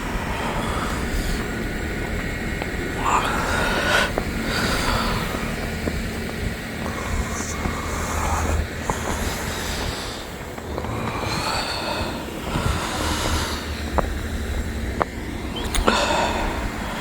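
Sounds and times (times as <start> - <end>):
road traffic rumble: 0.0 - 17.0
sharp clicks: 15.0 - 16.1.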